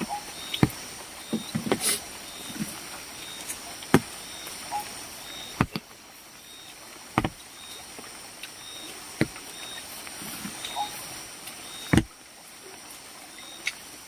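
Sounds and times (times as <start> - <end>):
faint steady background: 0.0 - 14.0
sharp knocks: 7.2 - 7.4
short high chirps: 10.6 - 11.1.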